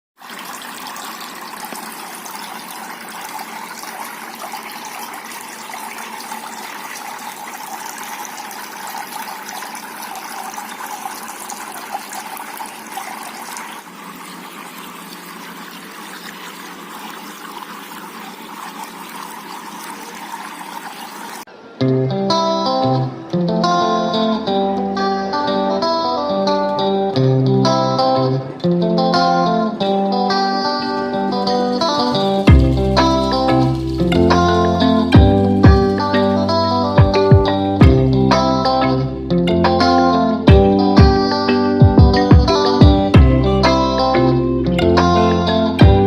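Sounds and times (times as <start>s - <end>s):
water trickling down fountain: 0.2s - 21.5s, 30.9s - 37.2s.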